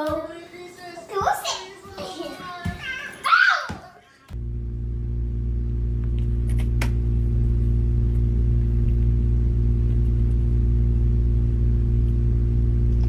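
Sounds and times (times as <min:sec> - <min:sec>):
steady low hum: 0:04.3 - 0:13.0.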